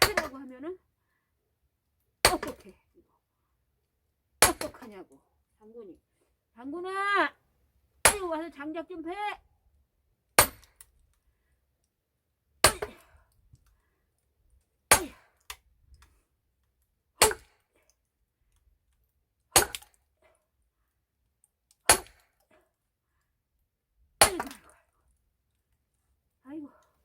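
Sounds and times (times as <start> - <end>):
axe chopping firewood: 0.0 - 0.4, 2.2 - 2.6, 4.4 - 4.9, 8.0 - 8.3, 10.4 - 10.9, 12.6 - 13.2, 14.9 - 15.6, 17.2 - 17.6, 19.6 - 20.0, 21.8 - 22.5, 24.2 - 24.8.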